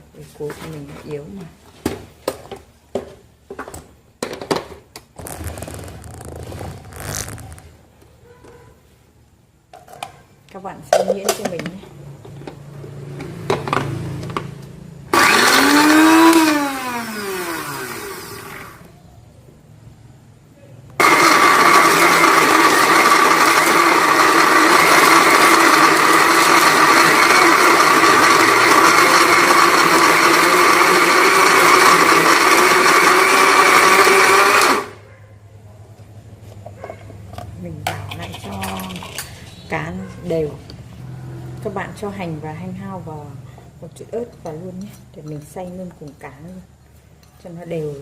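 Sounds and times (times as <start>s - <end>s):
electric food grinder motor: 15.1s - 18.9s, 21.0s - 35.0s.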